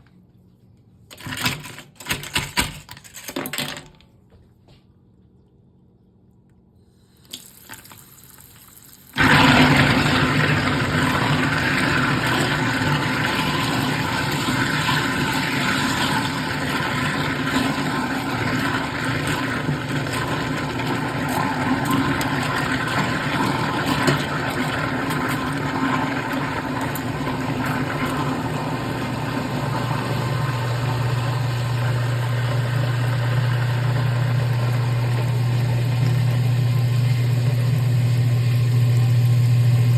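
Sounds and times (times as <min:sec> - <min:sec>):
garbage disposal motor hum: 0:03.6 - 0:39.9
water flowing into sink: 0:07.2 - 0:39.9.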